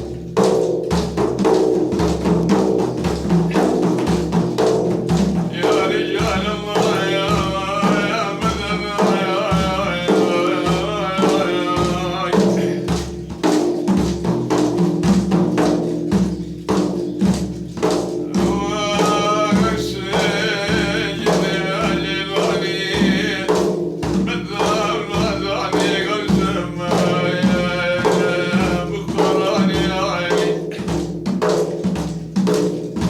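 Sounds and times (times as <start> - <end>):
hand drum and tambourine beating: 0.0 - 33.0
man singing: 5.4 - 13.2, 18.2 - 31.2.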